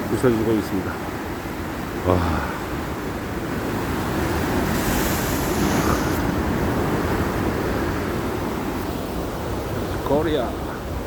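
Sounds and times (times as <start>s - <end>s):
sea waves breaking: 0.0s - 11.0s
wind on microphone: 2.7s - 10.0s.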